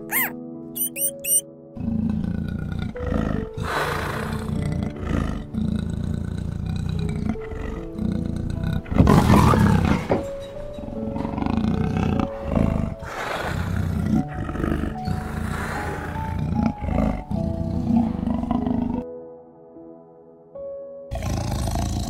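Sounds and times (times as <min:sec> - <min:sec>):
soft background music: 0:00.0 - 0:22.0
big cat roaring: 0:01.8 - 0:10.1, 0:10.9 - 0:19.0, 0:21.1 - 0:22.0.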